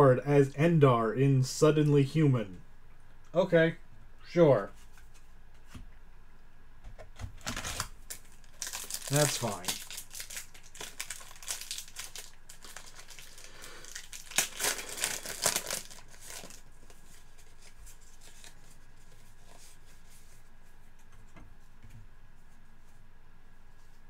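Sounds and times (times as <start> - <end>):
plastic packaging crinkling: 7.4 - 19.2.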